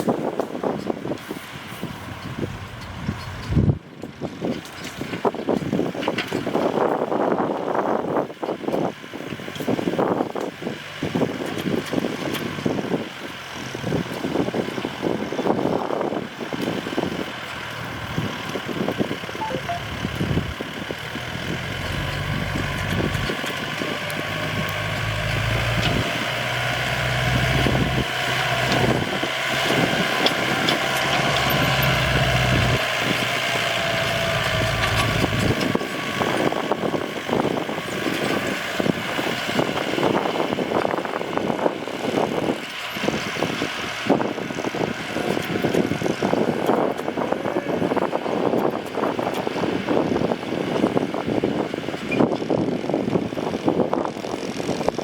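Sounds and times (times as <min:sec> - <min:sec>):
tractor diesel engine clattering: 0:00.0 - 0:55.0
deep engine hum: 0:01.9 - 0:03.8, 0:13.7 - 0:50.8.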